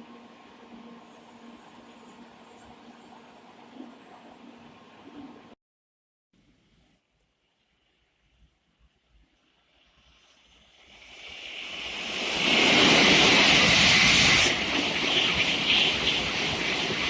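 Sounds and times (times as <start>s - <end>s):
high-speed train rushing past: 0.0s - 5.6s, 9.7s - 17.0s.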